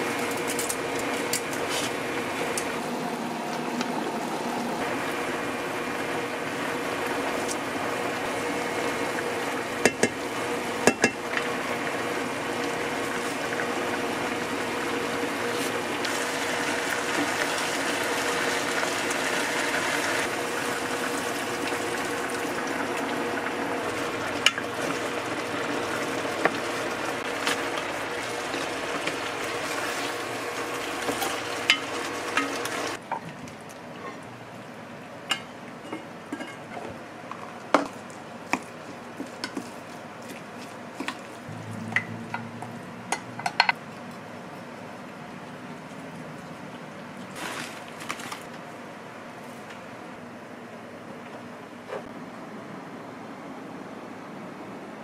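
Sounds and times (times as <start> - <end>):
food sizzling on stove: 3.9 - 33.0.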